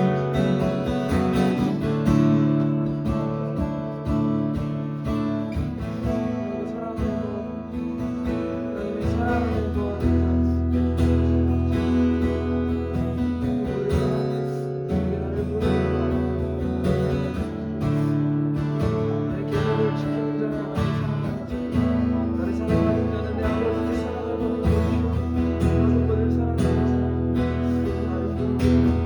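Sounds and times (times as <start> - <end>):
acoustic guitar strumming: 0.0 - 29.0
sustained bass: 8.8 - 29.0.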